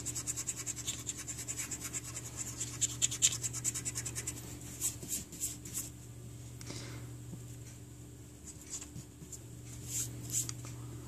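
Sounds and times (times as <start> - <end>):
eraser rubbing on paper: 0.0 - 5.6.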